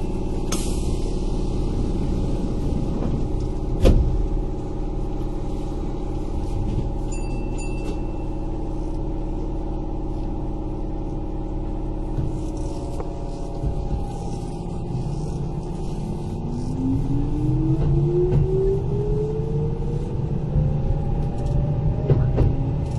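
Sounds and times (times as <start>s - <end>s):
train wheels rumbling on rail: 0.0s - 22.9s
traction motor hum: 8.9s - 22.1s.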